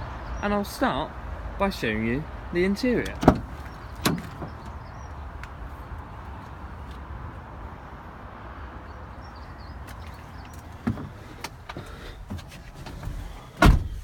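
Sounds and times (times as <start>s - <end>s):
van door shutting thud: 3.0s - 4.9s, 12.1s - 14.0s.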